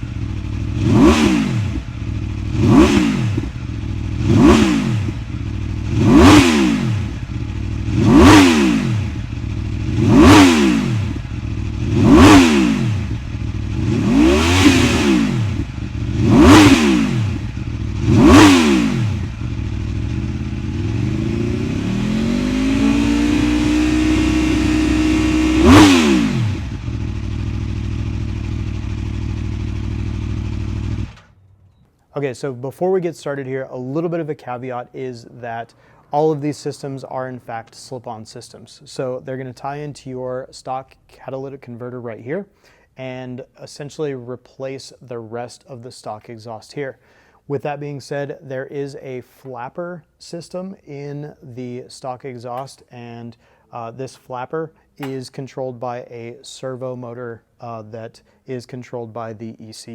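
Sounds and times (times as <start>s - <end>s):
motorcycle engine revving: 0.0s - 31.4s
motorcycle engine idling: 0.0s - 31.6s.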